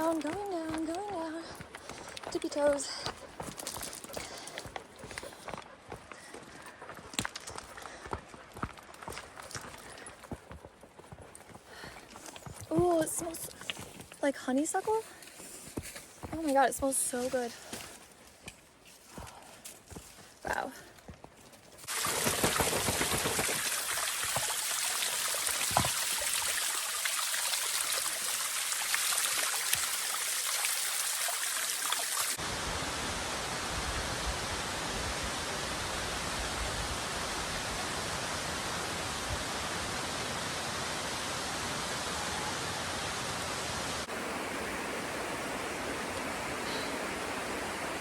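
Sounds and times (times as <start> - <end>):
waterfall rushing: 30.6 - 48.0.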